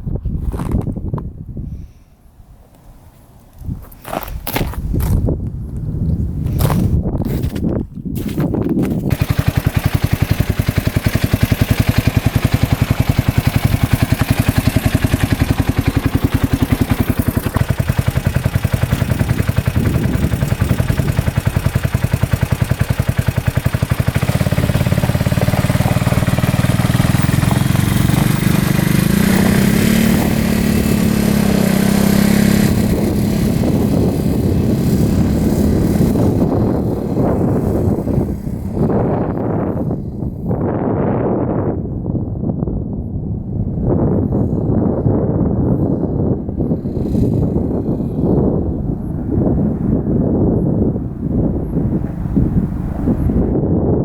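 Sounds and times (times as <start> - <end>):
utility vehicle engine revving: 8.2 - 39.8.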